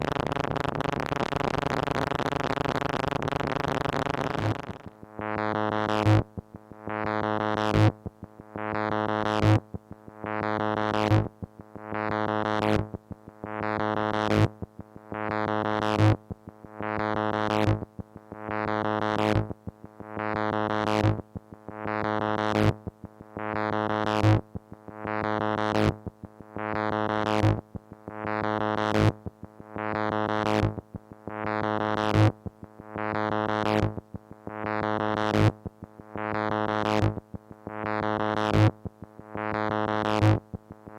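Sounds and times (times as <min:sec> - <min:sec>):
pulsing low synthesizer note: 0:00.0 - 0:05.0.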